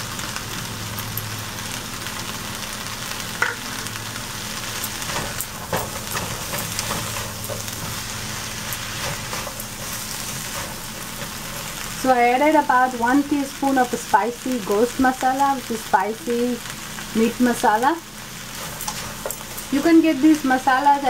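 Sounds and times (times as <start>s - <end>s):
vegetables sizzling in oil: 0.0s - 21.0s
spatula scraping and knocking pan: 5.0s - 11.9s, 18.5s - 19.8s.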